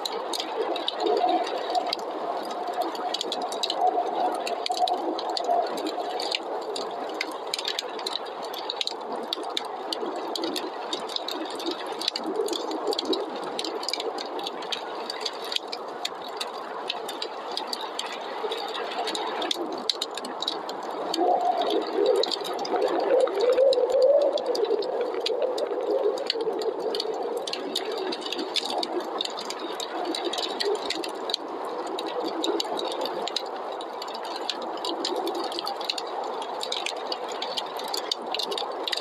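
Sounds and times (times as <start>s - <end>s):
wood fire crackling: 0.0s - 39.0s
snowstorm wind howling: 21.0s - 33.2s.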